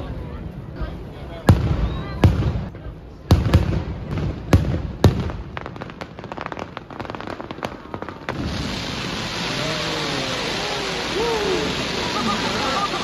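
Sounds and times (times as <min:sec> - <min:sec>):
firework crackling: 0:01.4 - 0:13.0
steady hiss: 0:05.5 - 0:13.0.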